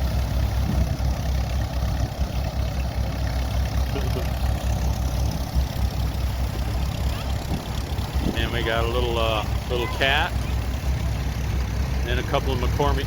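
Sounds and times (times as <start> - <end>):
tractor engines idling: 0.0 - 13.0
wind rumbling on microphone: 0.3 - 2.7, 6.6 - 8.7.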